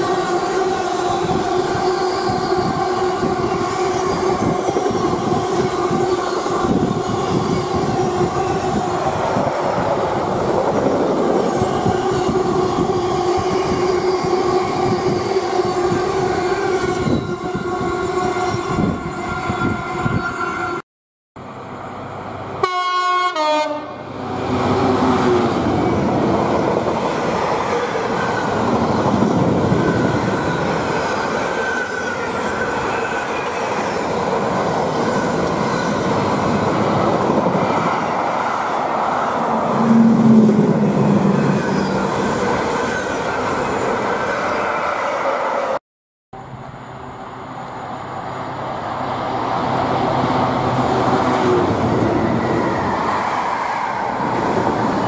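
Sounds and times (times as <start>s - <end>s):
train horn: 22.6s - 24.1s.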